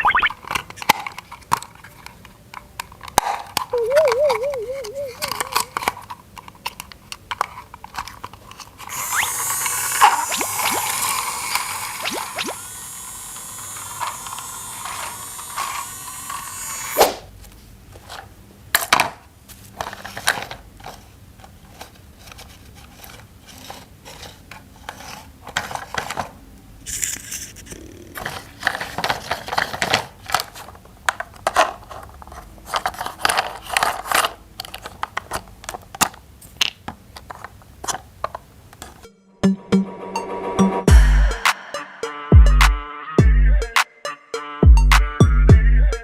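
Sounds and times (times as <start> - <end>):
plastic toy pieces clicking: 0.4 - 12.5, 28.2 - 38.4
steady hiss: 8.9 - 17.4.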